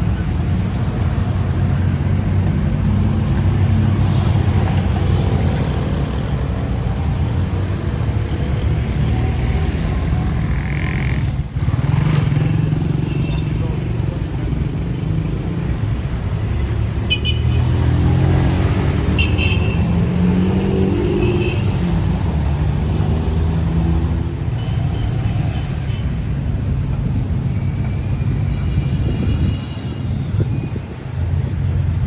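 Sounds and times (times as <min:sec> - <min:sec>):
vehicle engines rumbling: 0:00.0 - 0:32.0.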